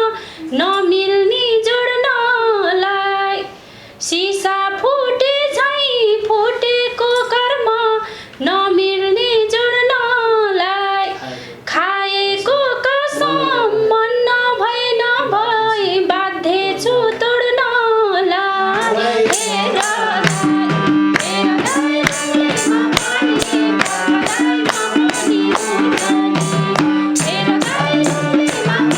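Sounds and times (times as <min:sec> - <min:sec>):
woman singing folk song: 0:00.0 - 0:28.9
instruments holding steady notes: 0:13.0 - 0:28.9
light percussion beat: 0:18.8 - 0:28.9.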